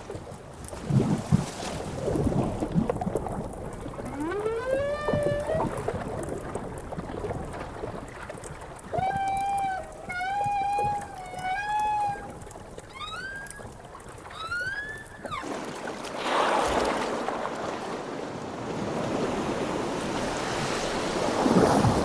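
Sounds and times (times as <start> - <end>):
whale song moans: 3.9 - 6.2, 8.8 - 15.5
rushing water wash: 15.4 - 22.0.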